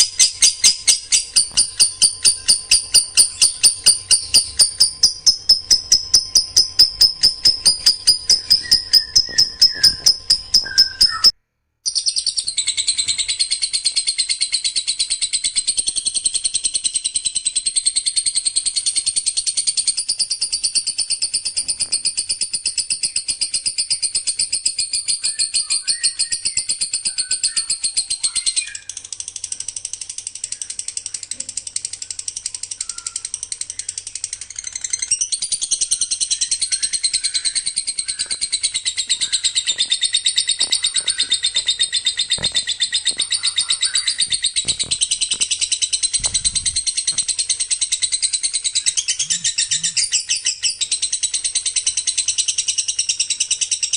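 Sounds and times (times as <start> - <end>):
songbird trilling: 0.0 - 11.3, 24.8 - 29.1, 30.1 - 52.7.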